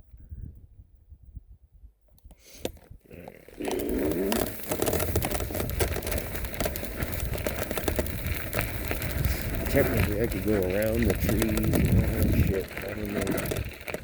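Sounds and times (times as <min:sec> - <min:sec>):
wind rumble on microphone: 0:00.0 - 0:02.2, 0:04.7 - 0:14.0
tyres crunching over dirt: 0:02.6 - 0:14.0.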